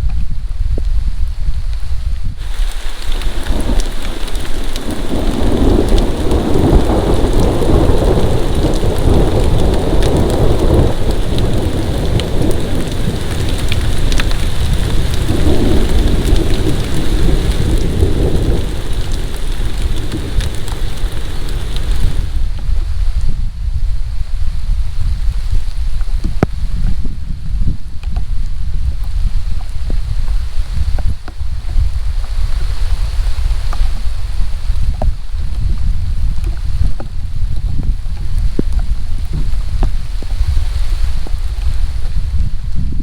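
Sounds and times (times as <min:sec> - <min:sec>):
heavy rain: 0:00.0 - 0:43.0
thunder rumbling: 0:02.4 - 0:25.5.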